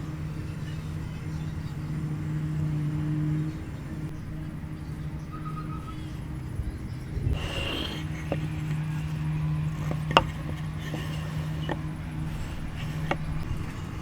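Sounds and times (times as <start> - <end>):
sharp wooden knocks: 7.4 - 13.5.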